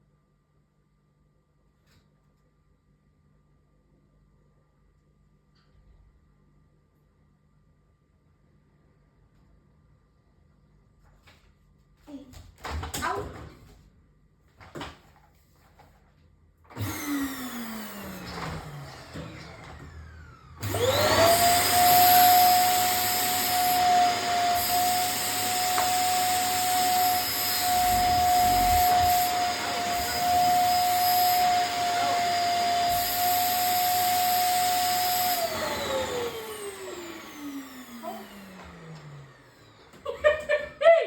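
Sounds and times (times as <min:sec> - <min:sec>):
vacuum cleaner motor whine: 0:16.7 - 0:40.8.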